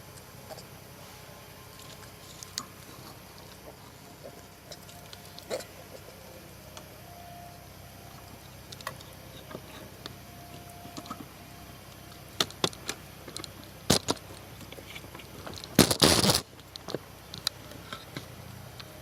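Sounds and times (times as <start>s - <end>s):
sharp clicks and crackles: 11.9s - 18.9s.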